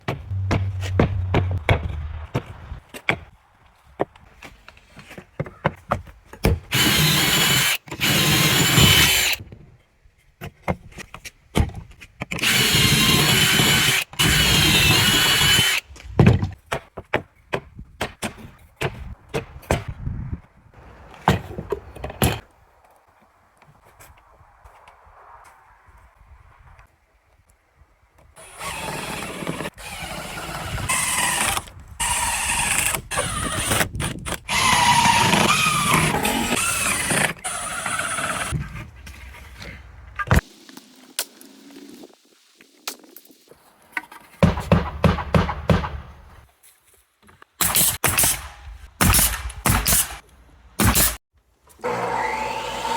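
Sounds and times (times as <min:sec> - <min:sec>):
power tool whining: 0:51.8 - 0:52.9.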